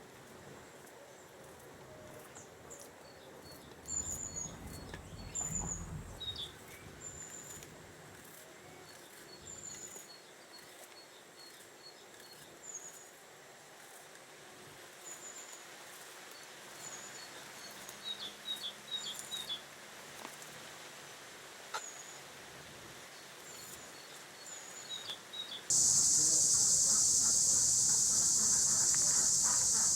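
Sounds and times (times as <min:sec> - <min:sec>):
outdoor background noise: 0:00.0 - 0:29.9
small birds chirping: 0:25.7 - 0:29.9.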